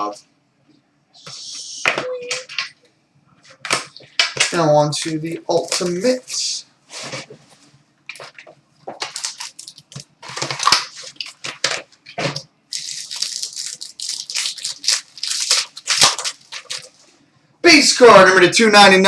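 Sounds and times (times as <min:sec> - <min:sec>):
plastic wrap and cardboard tearing: 0:08.2 - 0:17.0.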